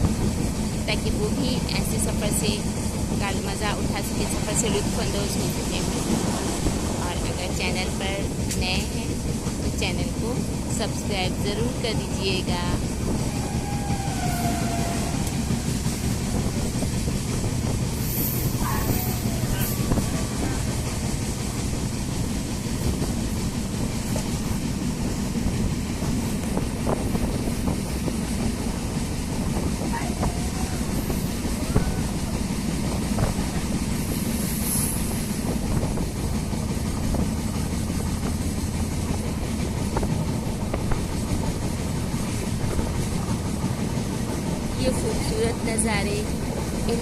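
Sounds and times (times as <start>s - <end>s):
train wheels rumbling on track: 0.0s - 47.0s.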